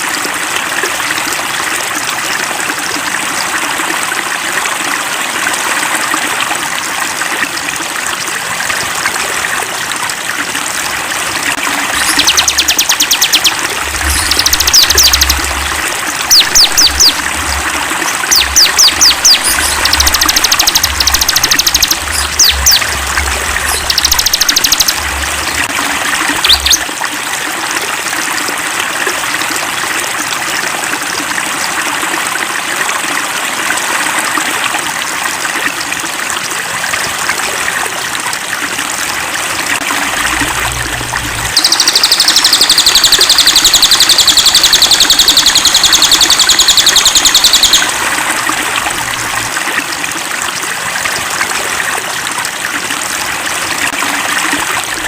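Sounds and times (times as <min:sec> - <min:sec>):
stream trickling: 0:00.0 - 0:55.0
high bird chirps: 0:11.8 - 0:26.8, 0:41.5 - 0:48.0
rapidly pulsing high trill: 0:11.9 - 0:26.8, 0:40.2 - 0:48.0.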